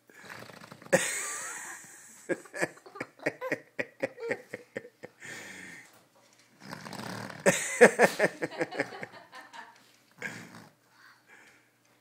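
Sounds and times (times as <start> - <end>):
boy making fart noises with mouth: 0.1 - 1.0, 6.6 - 7.5, 10.2 - 10.8.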